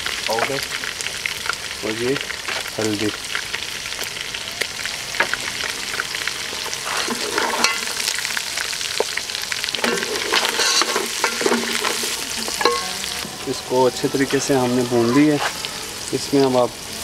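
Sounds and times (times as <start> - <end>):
meat sizzling in oil: 0.0 - 17.0
wooden spatula scraping a pot: 6.6 - 8.0, 9.8 - 13.4.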